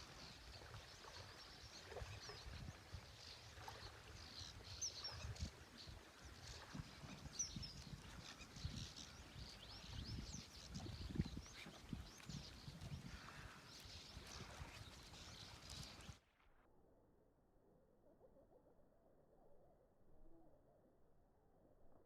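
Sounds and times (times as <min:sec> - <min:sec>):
small birds chirping: 0:00.0 - 0:16.2
wind on microphone: 0:00.0 - 0:16.2.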